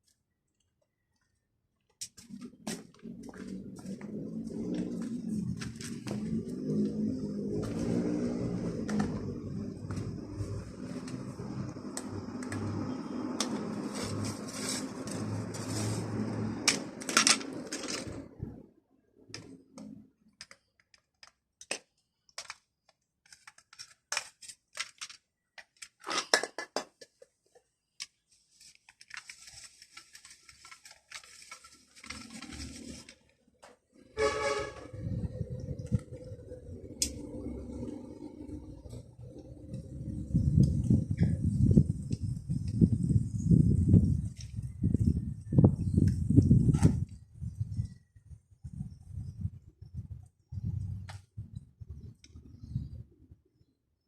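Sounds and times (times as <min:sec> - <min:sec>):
vehicle running: 0:02.4 - 0:18.4.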